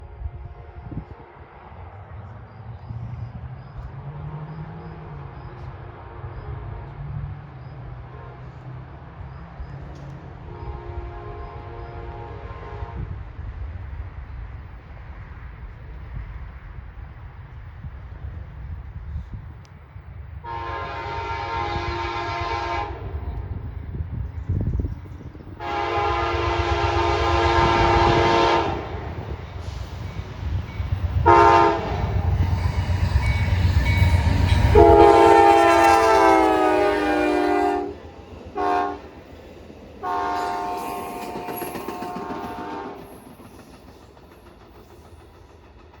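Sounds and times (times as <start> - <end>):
train air horn blasts: 0.0 - 1.3, 4.1 - 7.3, 8.1 - 8.8, 10.5 - 13.2, 20.4 - 23.4, 25.6 - 30.0, 31.2 - 38.0, 38.6 - 39.1, 40.0 - 43.2
train rumble: 0.0 - 46.0.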